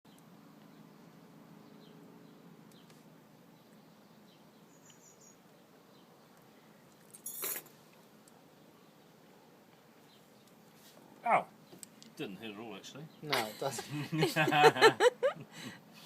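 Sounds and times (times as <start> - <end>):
small bird chirping: 0.1 - 7.1.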